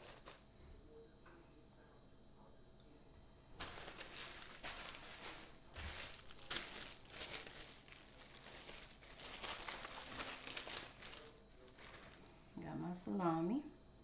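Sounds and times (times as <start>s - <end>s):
plastic packaging crinkling: 0.0s - 0.4s, 3.6s - 12.3s.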